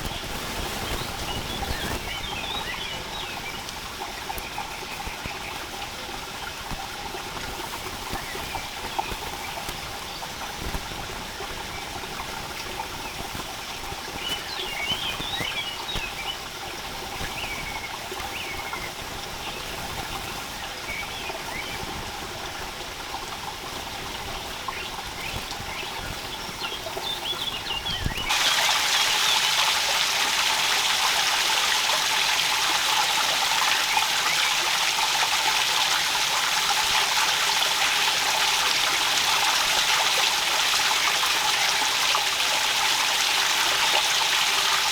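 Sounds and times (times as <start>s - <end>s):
small birds chirping: 0.0s - 6.8s, 7.6s - 22.0s, 24.0s - 34.8s
running water: 0.0s - 44.9s
rushing hiss of water: 0.0s - 44.9s.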